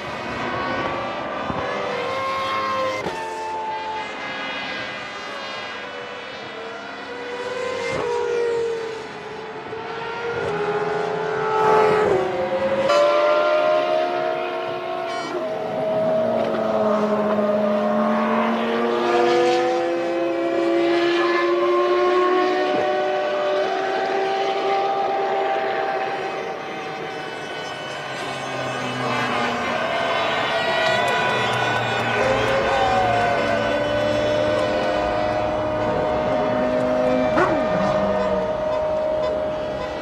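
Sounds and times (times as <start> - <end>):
racing car engines passing: 0.0 - 40.0.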